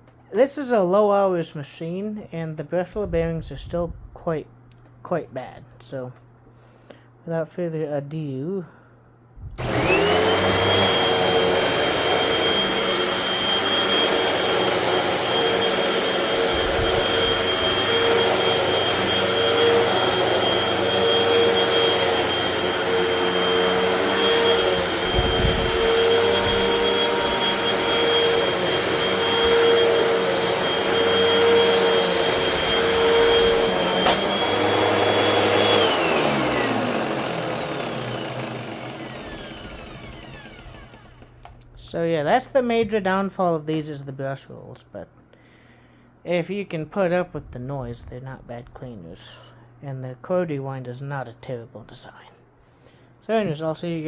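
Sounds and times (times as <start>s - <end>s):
upright vacuum running: 9.5s - 41.7s.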